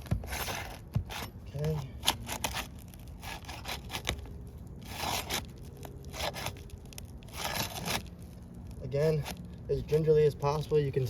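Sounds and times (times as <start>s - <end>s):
shingle scraping and tearing: 0.0s - 11.0s.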